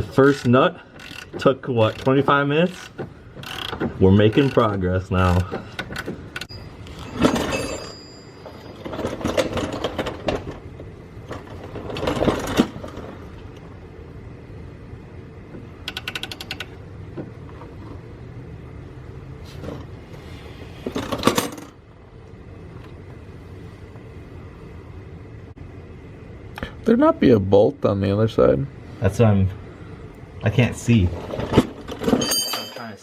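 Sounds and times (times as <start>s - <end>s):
ratchet wrench clicking: 15.8s - 16.8s
metal hand tools clanking: 31.9s - 33.0s.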